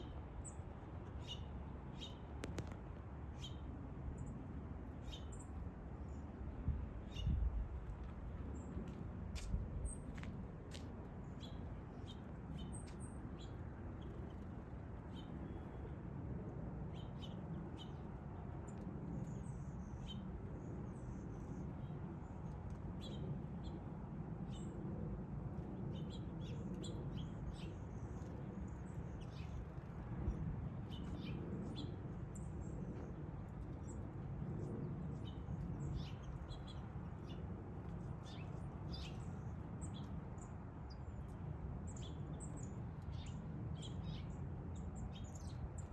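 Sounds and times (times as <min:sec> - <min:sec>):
songbirds chirping: 0:07.0 - 0:15.9, 0:25.6 - 0:45.9.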